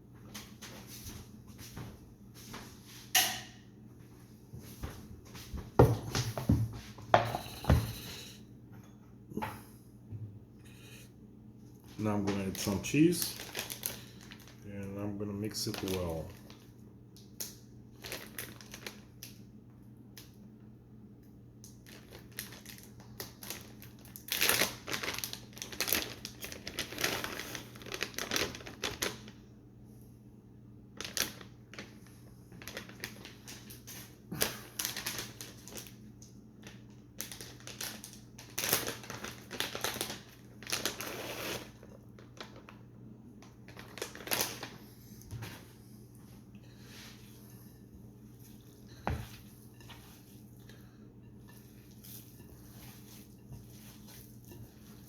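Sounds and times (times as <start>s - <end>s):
hands kneading wet meat: 46.2s - 55.0s.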